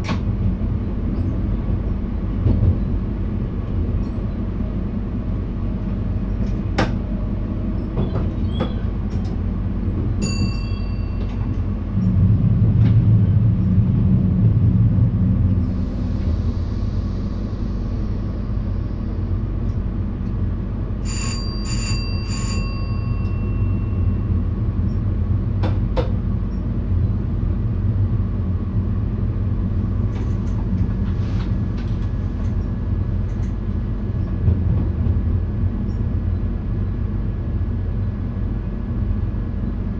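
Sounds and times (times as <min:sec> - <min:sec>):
train rumbling on rails: 0:00.0 - 0:39.9
short bell-like chime: 0:10.2 - 0:11.4, 0:21.1 - 0:24.2.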